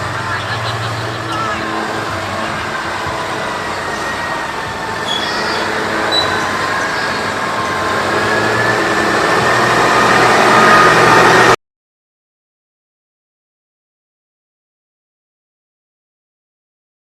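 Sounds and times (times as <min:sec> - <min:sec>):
tractor engine under load: 0:00.0 - 0:11.6.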